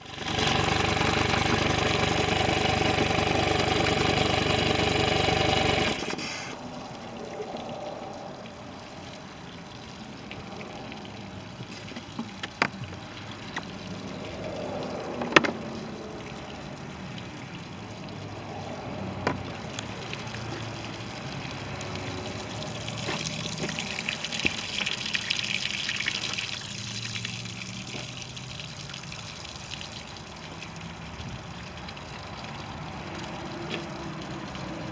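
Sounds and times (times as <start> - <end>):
outboard motor running: 0.0 - 6.6
sharp clicks: 0.0 - 6.6
water wash: 0.0 - 34.9
water splashing: 17.0 - 34.9.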